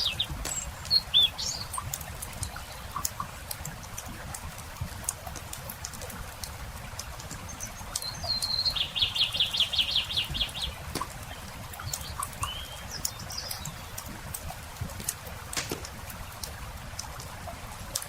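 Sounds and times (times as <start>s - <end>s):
campfire crackling: 0.0s - 18.0s
low steady rustle: 0.0s - 18.0s
songbird trilling: 7.6s - 13.9s.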